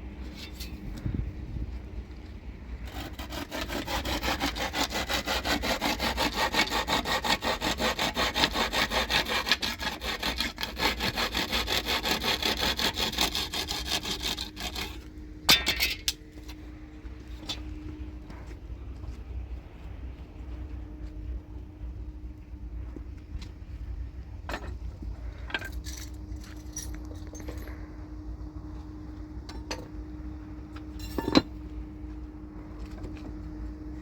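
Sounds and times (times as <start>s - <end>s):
hand saw cutting wood: 2.8s - 15.1s.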